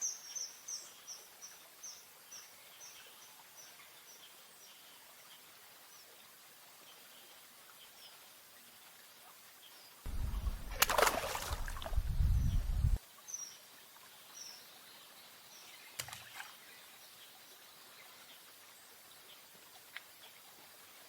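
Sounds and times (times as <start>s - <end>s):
loud low rumble: 10.1s - 13.0s.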